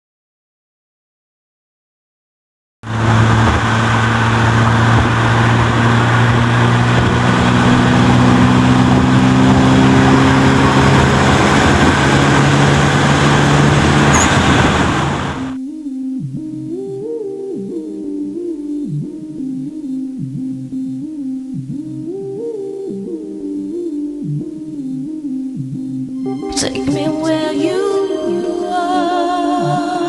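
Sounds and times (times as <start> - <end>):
loud vehicle engine running: 2.8 - 15.6.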